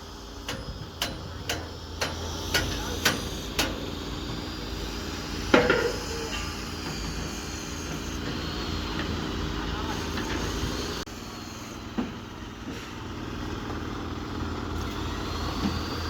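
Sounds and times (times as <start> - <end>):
loud clank with ringing tone: 5.5 - 8.2.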